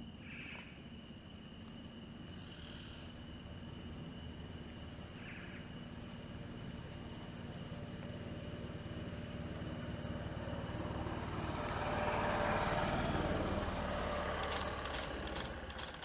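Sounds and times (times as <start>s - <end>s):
vehicle passing by: 3.5s - 16.0s.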